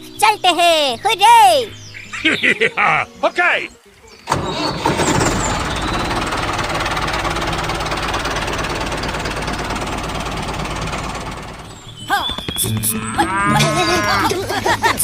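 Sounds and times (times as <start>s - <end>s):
small engine rattling: 4.3s - 12.9s.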